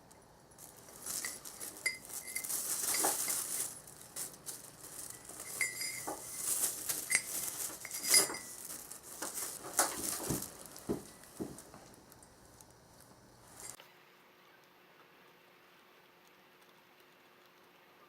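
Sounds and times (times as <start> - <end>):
metal parts clinking: 1.0 - 10.8.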